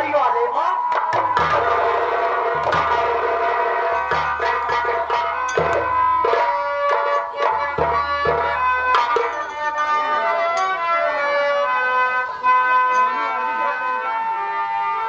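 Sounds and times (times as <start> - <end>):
melody of long held notes: 0.0 - 15.0
drum strokes with deep thumps: 1.0 - 9.5.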